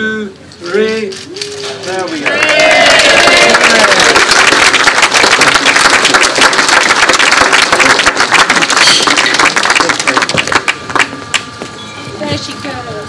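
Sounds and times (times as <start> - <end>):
crowd applauding: 2.1 - 11.4.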